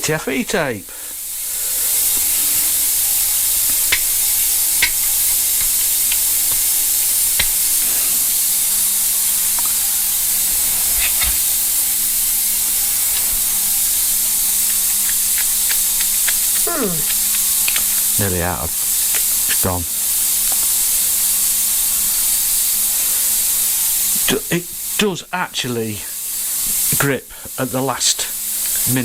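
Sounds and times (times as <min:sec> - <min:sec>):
steady high hiss: 0:00.0 - 0:29.0
small metal parts clicking: 0:02.0 - 0:18.1.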